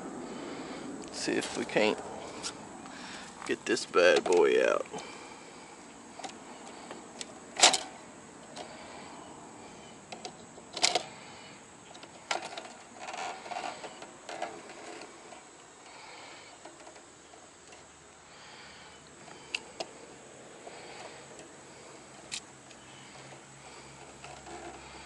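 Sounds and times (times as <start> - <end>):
plastic and metal rattles: 3.7 - 4.8, 7.6 - 8.7, 11.9 - 17.8, 23.0 - 25.0
sharp clicks and knocks: 4.0 - 5.0.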